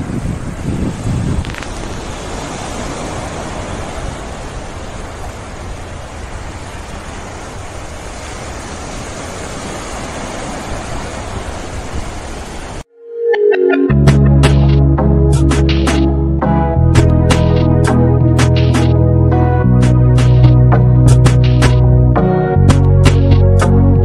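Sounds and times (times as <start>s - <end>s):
sea surf on a beach: 0.0s - 13.8s.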